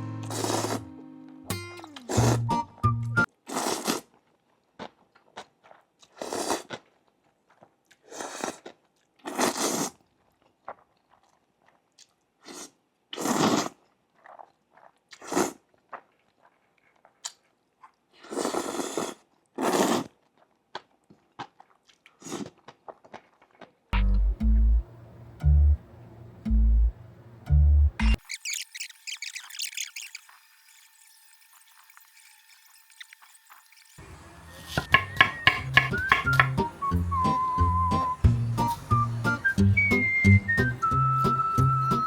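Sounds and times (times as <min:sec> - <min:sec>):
person chewing crunchy food: 0:00.2 - 0:00.9, 0:03.4 - 0:23.9.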